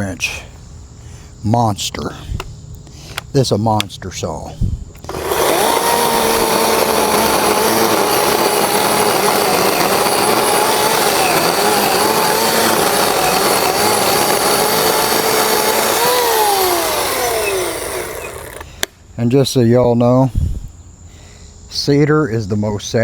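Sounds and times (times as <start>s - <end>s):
chainsaw cutting through branch: 5.0s - 18.9s
electric motor whining: 5.0s - 18.9s.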